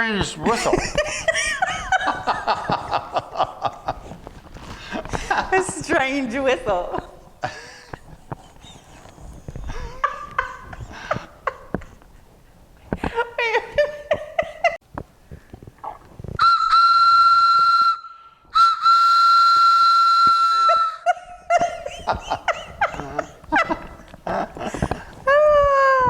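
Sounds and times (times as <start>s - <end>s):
whistle blasts: 16.4s - 21.0s.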